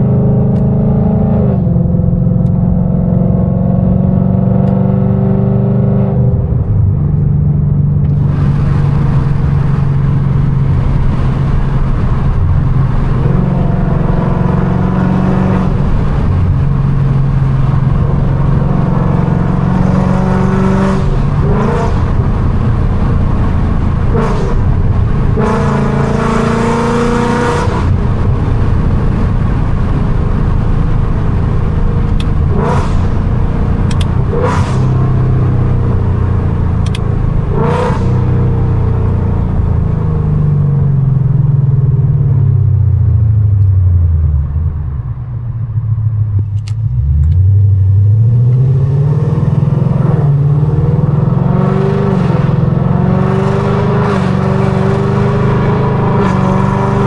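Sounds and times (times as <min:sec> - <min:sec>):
car engine revving: 0:00.0 - 0:57.0
exhaust pops: 0:27.1 - 0:39.8.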